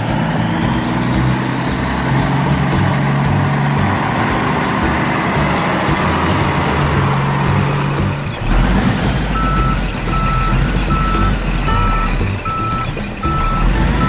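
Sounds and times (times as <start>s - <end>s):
low truck engine rumble: 0.0s - 14.0s
truck reversing beeper: 8.5s - 14.0s.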